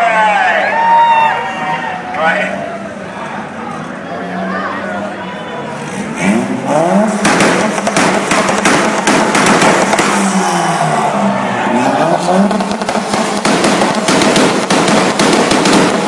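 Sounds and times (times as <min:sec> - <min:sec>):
car engine revving loud exhaust: 0:05.6 - 0:16.0
exhaust pops and crackles: 0:07.1 - 0:10.3, 0:12.4 - 0:16.0.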